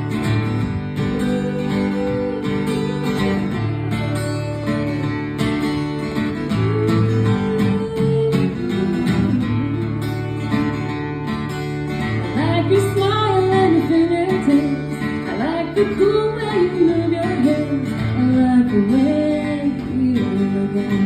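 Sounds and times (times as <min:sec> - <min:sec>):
acoustic guitar playing: 0:00.0 - 0:21.0
person singing: 0:06.4 - 0:10.9.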